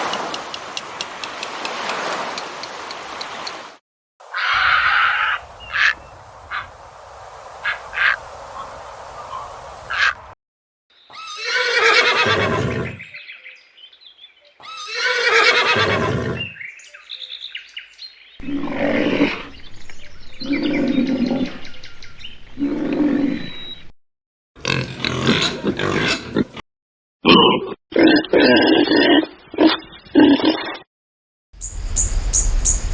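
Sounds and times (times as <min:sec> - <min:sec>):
horse neighing: 0:11.1 - 0:13.0, 0:14.6 - 0:16.5
pig grunting: 0:18.4 - 0:19.7, 0:24.6 - 0:26.6
rhinoceros calling: 0:18.4 - 0:19.8.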